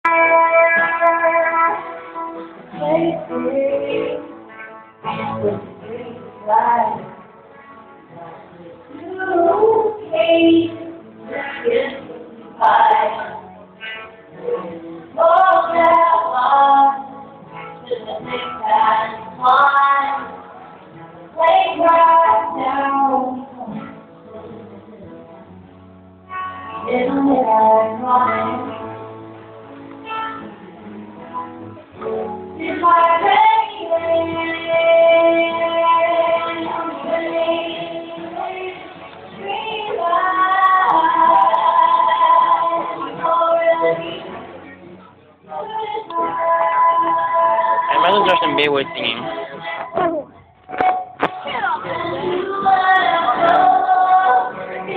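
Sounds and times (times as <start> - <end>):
music: 0.0 - 54.9
high voice singing: 45.8 - 50.2.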